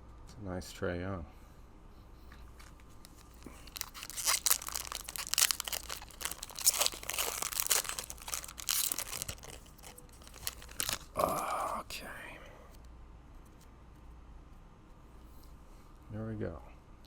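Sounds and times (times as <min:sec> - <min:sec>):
plastic wrapper crinkling and tearing: 0:03.0 - 0:11.7.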